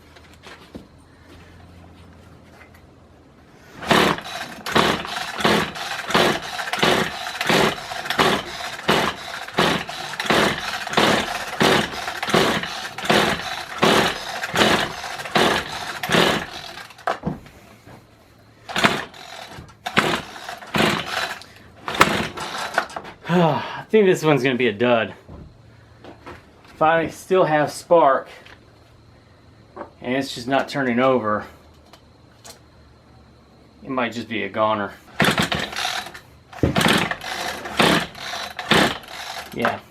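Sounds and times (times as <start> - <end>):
small engine cranking: 3.8 - 17.2, 18.7 - 23.0, 35.1 - 39.9
recoil pull-starter yanked: 3.8 - 17.3, 18.7 - 23.1, 35.2 - 39.8.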